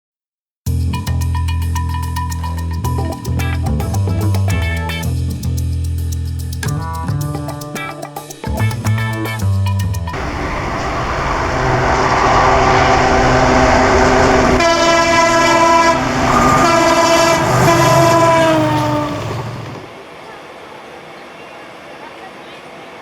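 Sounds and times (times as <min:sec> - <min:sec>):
diesel locomotives rumbling: 0:10.1 - 0:23.0
train horn blasts: 0:10.2 - 0:19.9.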